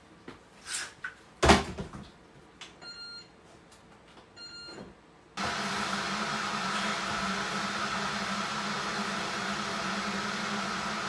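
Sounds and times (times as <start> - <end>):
kettle heating hiss and hum: 5.4 - 11.0.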